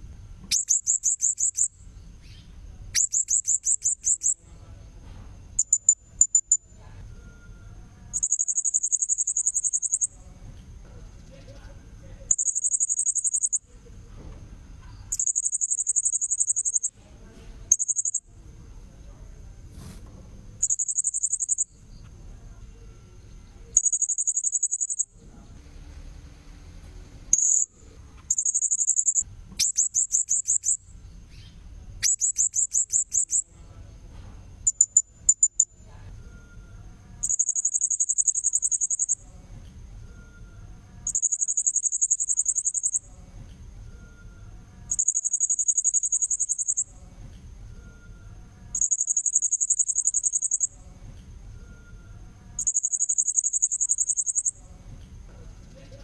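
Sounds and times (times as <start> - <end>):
faint high whine: 0.0 - 56.0
parrot high-pitched trills: 44.9 - 46.8.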